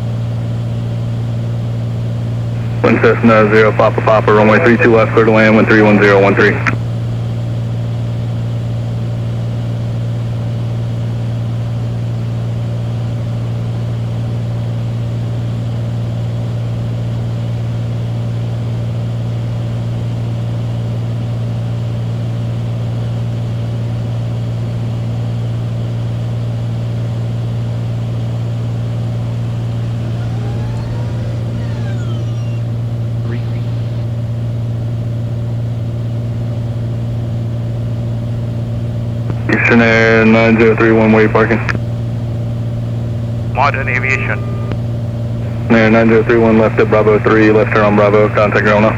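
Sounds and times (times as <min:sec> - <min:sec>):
plane engine and propeller drone: 0:00.0 - 0:48.9
faint gliding tones: 0:29.2 - 0:34.2.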